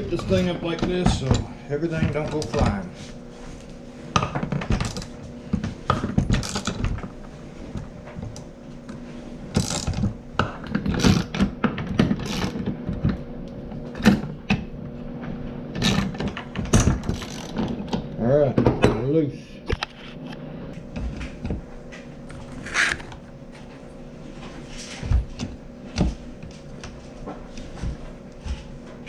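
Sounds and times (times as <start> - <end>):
hand tools clicking and clanking: 0.0 - 2.9.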